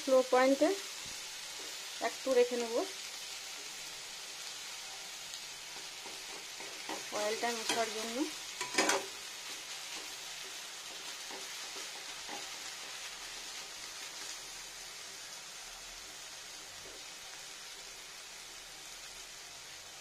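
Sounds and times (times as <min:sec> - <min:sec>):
greens frying in oil: 0:00.0 - 0:20.0
metal spoon scraping: 0:08.6 - 0:09.1.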